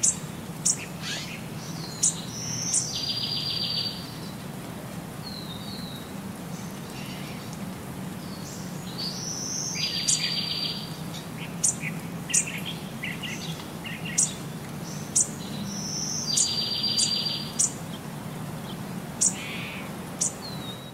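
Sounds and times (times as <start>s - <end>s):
bird chirps and trills: 0.0s - 4.4s, 8.3s - 18.0s, 18.6s - 20.9s.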